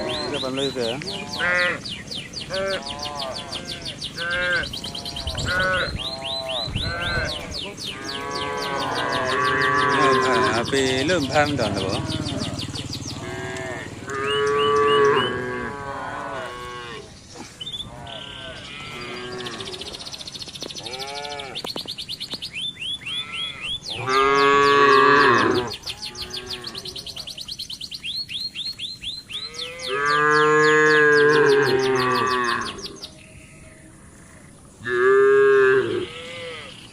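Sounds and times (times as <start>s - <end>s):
high chirping: 0.0s - 13.4s
cattle mooing: 0.0s - 20.1s, 20.8s - 21.7s, 23.1s - 27.4s, 29.3s - 33.7s, 34.4s - 36.8s.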